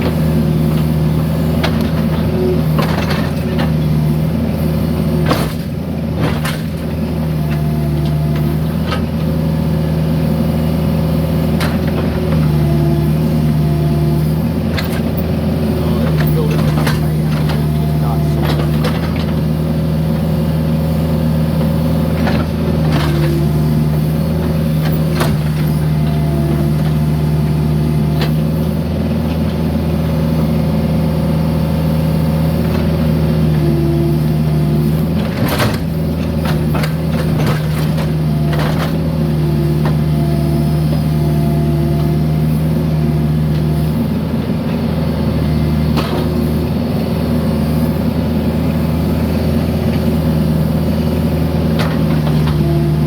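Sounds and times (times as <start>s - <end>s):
diesel engine running: 0.0s - 53.0s
excavator bucket clanking on concrete: 14.6s - 19.5s, 35.0s - 39.2s.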